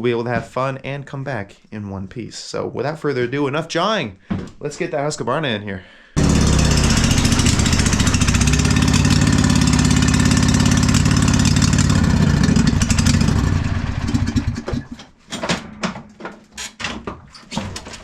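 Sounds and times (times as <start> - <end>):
mower engine running: 6.2 - 14.9.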